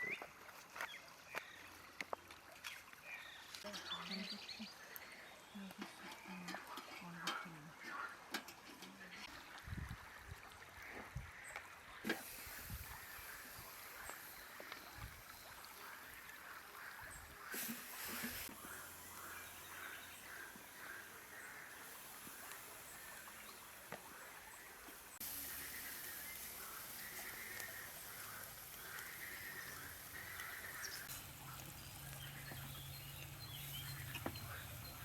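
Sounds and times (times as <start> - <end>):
birds chirping: 2.6 - 9.9, 10.5 - 35.0
soft steady hiss: 10.4 - 35.0.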